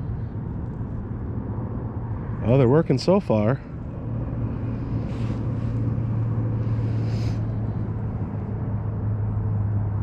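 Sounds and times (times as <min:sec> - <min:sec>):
rumbling background noise: 0:00.0 - 0:10.0
steady low hum: 0:00.0 - 0:10.0.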